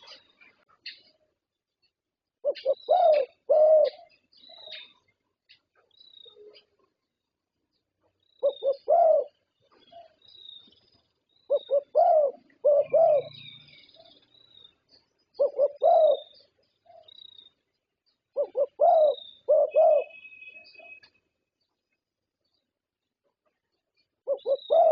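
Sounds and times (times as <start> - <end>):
small birds chirping: 0.0 - 24.9
dove cooing: 2.4 - 4.9, 8.4 - 10.2, 11.5 - 14.1, 15.4 - 17.2, 18.3 - 21.0, 24.2 - 24.9.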